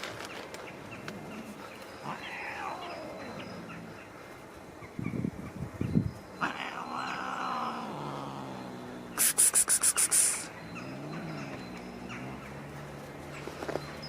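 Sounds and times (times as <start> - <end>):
sharp high clicks: 9.2 - 10.5.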